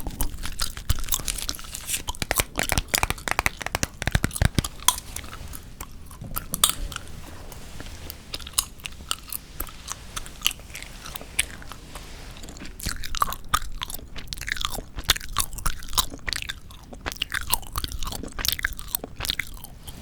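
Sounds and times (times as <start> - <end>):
gum chewing clicks and smacks: 0.0 - 7.0, 12.8 - 19.8.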